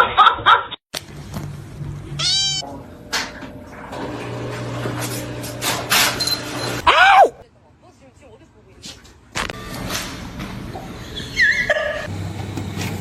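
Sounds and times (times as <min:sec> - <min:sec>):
cat meowing: 0:02.2 - 0:02.6.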